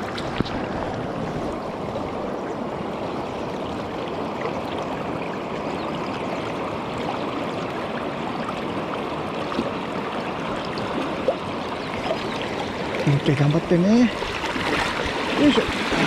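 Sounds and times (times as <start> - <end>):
river rushing over stones: 6.4 - 16.0.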